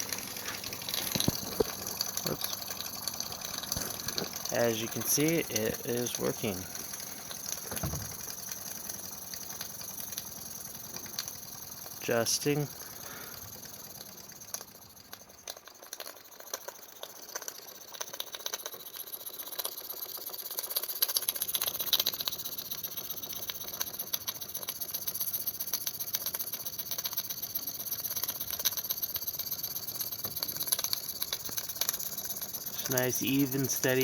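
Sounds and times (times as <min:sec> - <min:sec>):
steam hissing: 0:00.0 - 0:13.9, 0:30.4 - 0:34.0
model steam engine chuffing: 0:00.0 - 0:34.0.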